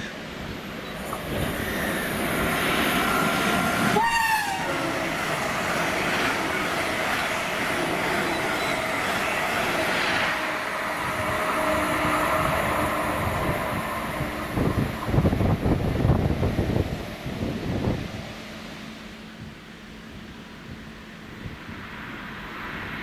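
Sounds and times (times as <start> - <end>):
train wheels rumbling on rails: 0.0 - 23.0
train horn toot: 3.1 - 5.2.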